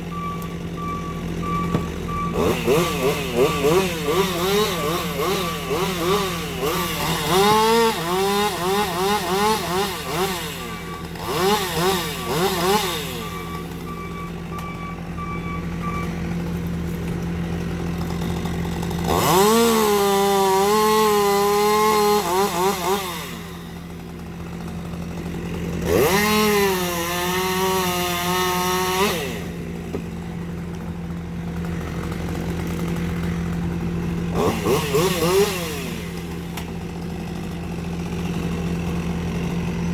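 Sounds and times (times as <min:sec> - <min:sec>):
chainsaw revving: 0:00.0 - 0:14.4, 0:16.6 - 0:39.9
chainsaw cutting tree: 0:00.0 - 0:15.1, 0:15.7 - 0:39.9.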